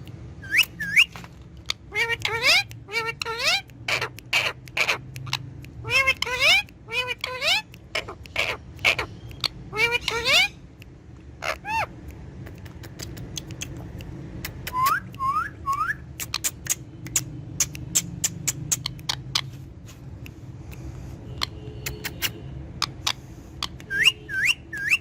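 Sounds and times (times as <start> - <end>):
sharp clicks and ticks: 0.0 - 2.9, 3.6 - 9.7, 10.6 - 24.1
parrot rising whistles: 0.4 - 1.1.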